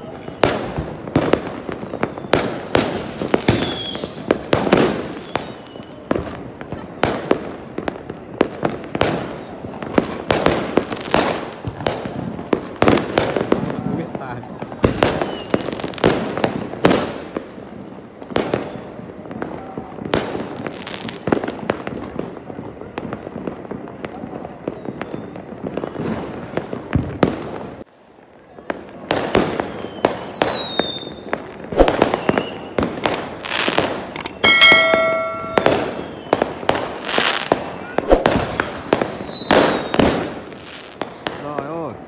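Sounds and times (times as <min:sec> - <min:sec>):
falling firework whistles: 0:00.0 - 0:17.6, 0:18.2 - 0:42.0
fireworks banging: 0:00.0 - 0:27.9, 0:28.6 - 0:42.0
steady pitched tone: 0:34.4 - 0:36.1.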